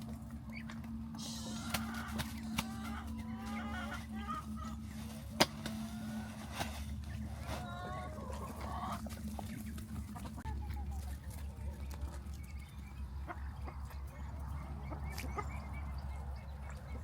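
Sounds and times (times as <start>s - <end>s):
steady low hum: 0.0s - 17.0s
poultry calling: 0.4s - 11.1s.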